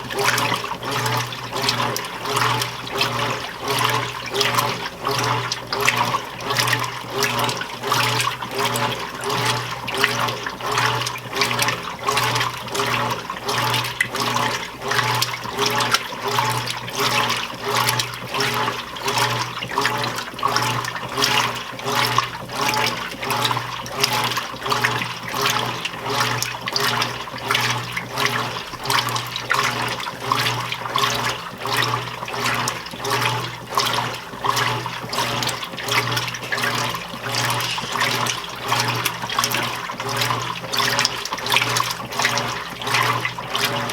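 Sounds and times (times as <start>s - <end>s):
washing machine motor humming: 0.0s - 43.9s
water sloshing: 0.0s - 43.9s.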